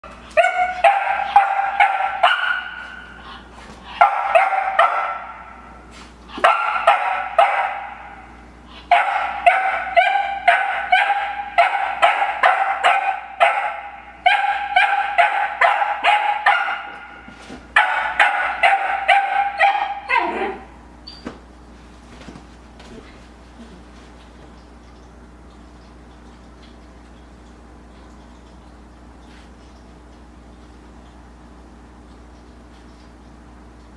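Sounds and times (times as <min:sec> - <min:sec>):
puppy barking: 0:00.3 - 0:03.2, 0:03.9 - 0:05.7, 0:06.4 - 0:20.7.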